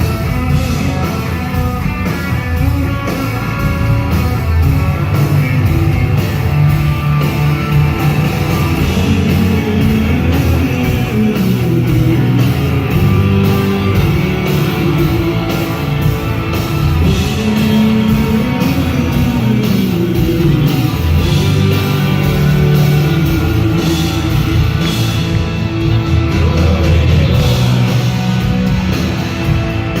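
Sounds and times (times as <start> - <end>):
drums: 0.0 - 30.0
electric guitar: 0.0 - 30.0
person singing: 8.6 - 16.4, 17.0 - 25.2.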